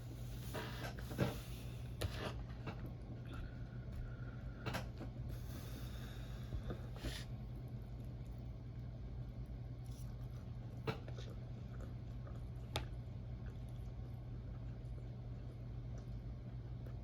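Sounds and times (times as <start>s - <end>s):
person chewing food: 9.8s - 17.0s.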